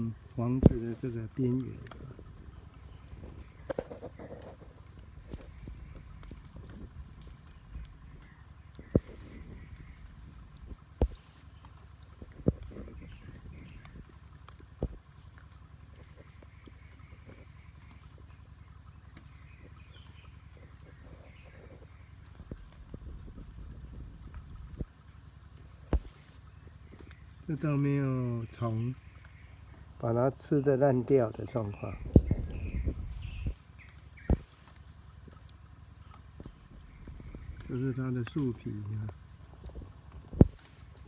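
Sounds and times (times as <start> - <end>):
high-pitched insect chorus: 0.0 - 41.0
faint bird chirps: 7.2 - 14.2, 15.6 - 22.2, 31.2 - 34.6.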